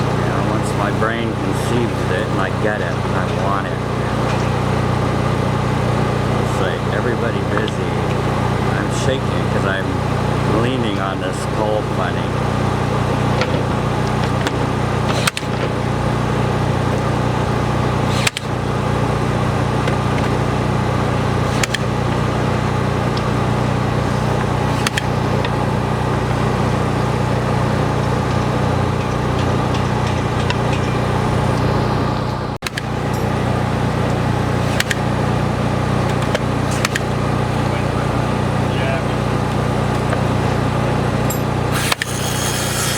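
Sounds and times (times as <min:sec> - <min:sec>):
machinery engine running: 0:00.0 - 0:42.9.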